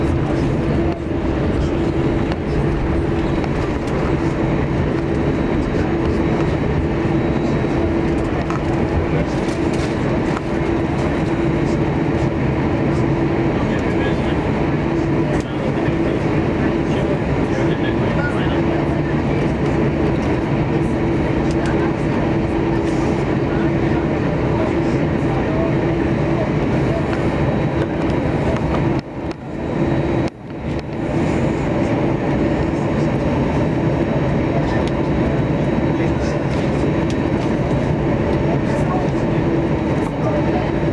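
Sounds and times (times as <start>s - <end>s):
jet engine noise: 0.0s - 40.9s
steady hum: 0.0s - 40.9s.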